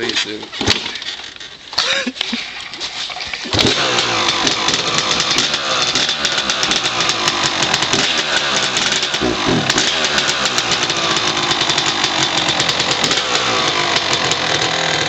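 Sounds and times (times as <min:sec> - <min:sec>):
two-stroke motorcycle engine: 0:03.4 - 0:15.0.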